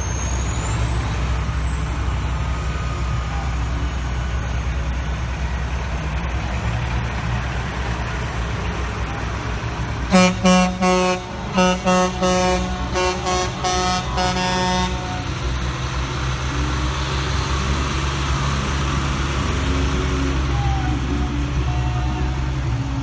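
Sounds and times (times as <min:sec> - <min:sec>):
truck engines rumbling: 0:00.0 - 0:23.0
truck air horn blasts: 0:10.1 - 0:16.0.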